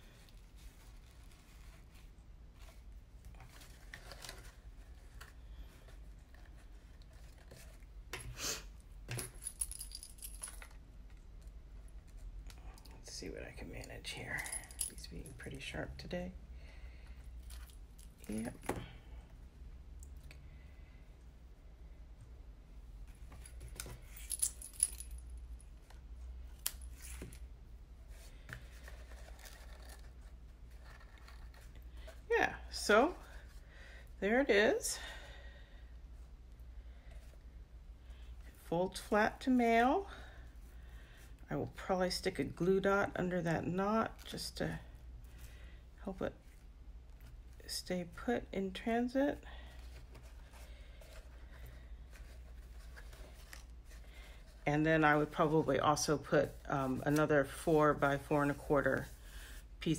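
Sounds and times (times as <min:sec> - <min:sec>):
card and ribbon rustling: 0:00.0 - 0:08.2, 0:17.4 - 0:18.8, 0:23.0 - 0:33.6, 0:47.2 - 0:59.6
paper rustling: 0:28.1 - 0:31.8.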